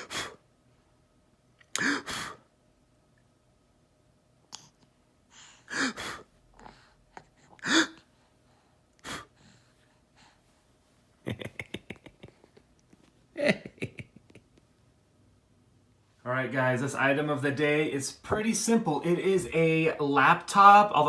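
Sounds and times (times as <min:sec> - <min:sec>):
baby panting huffs: 0:00.0 - 0:00.4, 0:01.8 - 0:02.4, 0:05.3 - 0:10.6.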